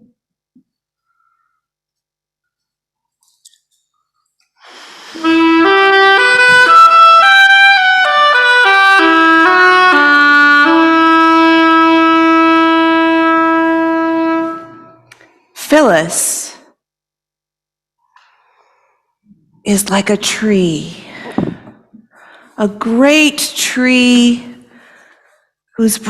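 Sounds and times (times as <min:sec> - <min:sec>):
woodwind solo melody: 0:05.0 - 0:15.1.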